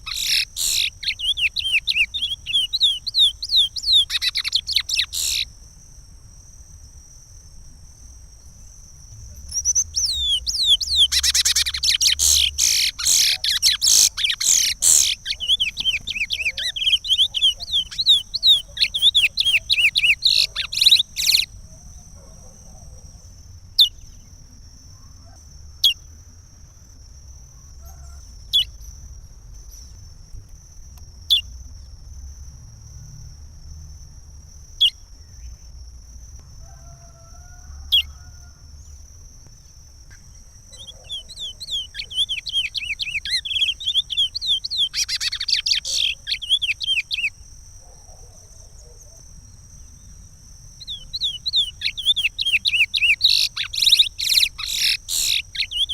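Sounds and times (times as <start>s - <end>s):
finch singing: 0.0s - 5.5s, 9.4s - 21.6s, 40.7s - 47.4s, 50.8s - 55.9s.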